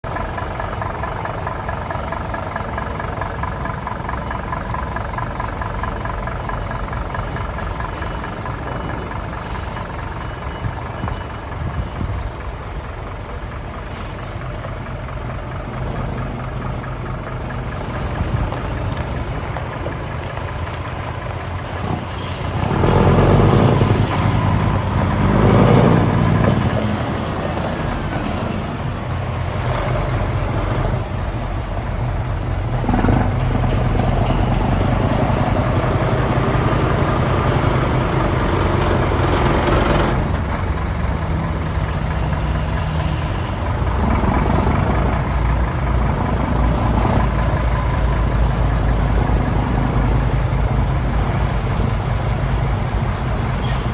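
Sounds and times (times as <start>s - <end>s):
diesel truck engine revving: 0.0s - 53.9s.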